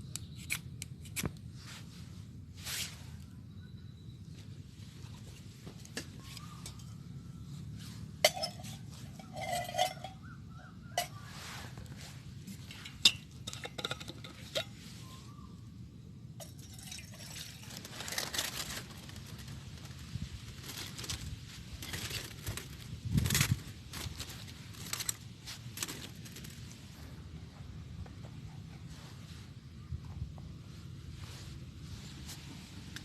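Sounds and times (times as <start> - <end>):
rustling: 1.4 - 3.3, 11.0 - 15.4, 17.2 - 33.0
metal cookware clinking: 8.2 - 10.3.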